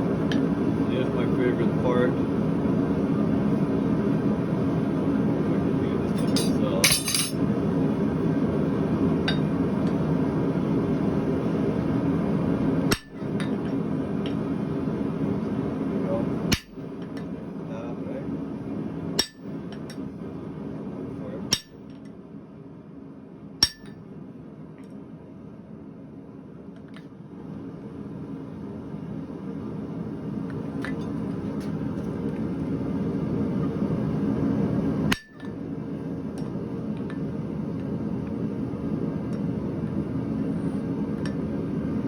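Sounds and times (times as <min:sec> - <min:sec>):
hammer striking steel: 0:12.9 - 0:13.2, 0:16.5 - 0:16.8, 0:19.2 - 0:19.6, 0:21.5 - 0:21.8, 0:23.6 - 0:24.0, 0:35.1 - 0:35.5.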